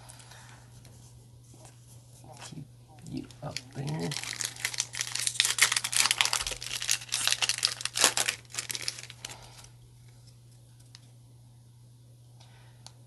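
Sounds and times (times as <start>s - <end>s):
foil wrapper crinkling: 3.1s - 9.7s.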